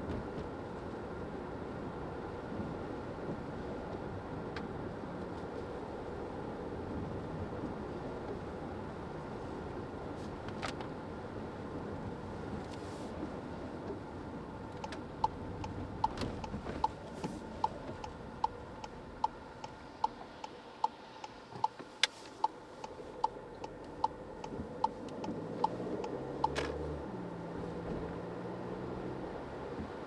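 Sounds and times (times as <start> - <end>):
road and engine noise: 0.0 - 30.0
turn signal ticking: 13.7 - 30.0.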